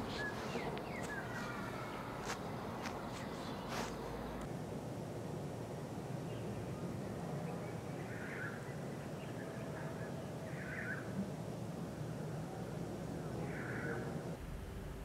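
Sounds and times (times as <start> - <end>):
bird calling: 0.0 - 4.4, 8.0 - 11.1, 13.4 - 14.3
steady low hum: 0.0 - 15.0.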